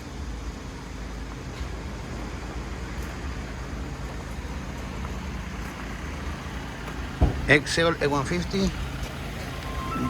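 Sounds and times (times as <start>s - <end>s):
outdoor background noise: 0.0s - 10.0s
vehicle engine idling: 0.0s - 10.0s.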